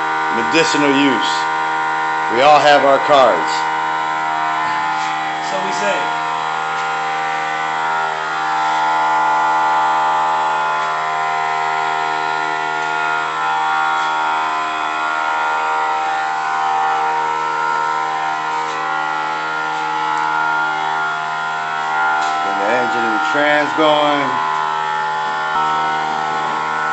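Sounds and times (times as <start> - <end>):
motor hum: 0.0 - 26.9.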